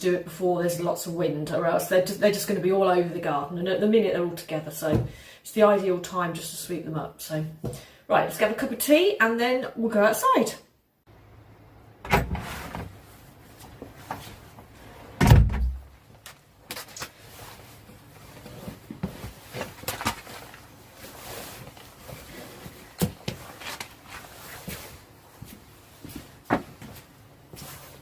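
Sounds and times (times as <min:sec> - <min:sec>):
doors and cupboards opening and shutting: 0:12.0 - 0:13.1, 0:14.8 - 0:15.9.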